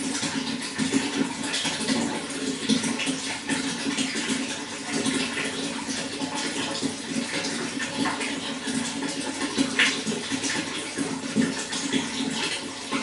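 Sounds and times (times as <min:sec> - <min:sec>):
running water splashing: 0:00.0 - 0:13.0.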